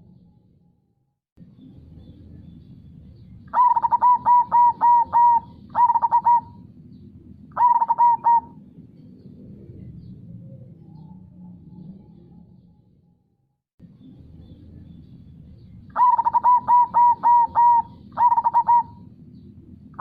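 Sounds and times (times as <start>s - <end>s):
low steady background wash: 0.0s - 20.0s
dove cooing: 3.5s - 8.7s, 15.9s - 19.1s.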